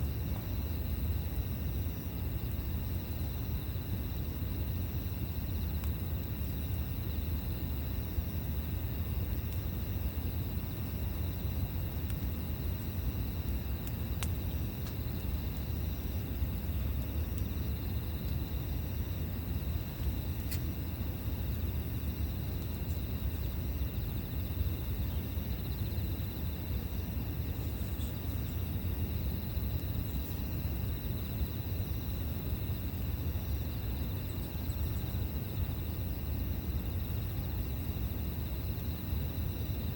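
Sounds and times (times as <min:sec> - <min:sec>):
insects chirring: 0:00.0 - 0:39.9
campfire pops: 0:11.6 - 0:18.4, 0:19.2 - 0:21.0.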